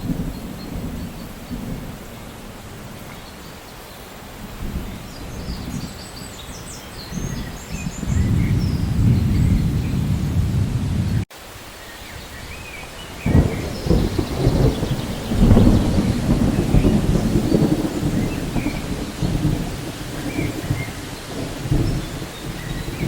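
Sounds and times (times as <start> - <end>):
thunder rolling: 0.0 - 3.0, 7.1 - 11.3, 13.0 - 23.0
steady rain: 0.0 - 23.0.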